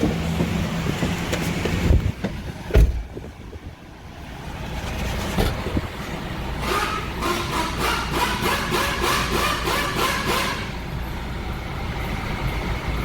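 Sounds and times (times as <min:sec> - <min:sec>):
heavy thumps: 0:00.0 - 0:03.4
car engine running: 0:00.0 - 0:03.7.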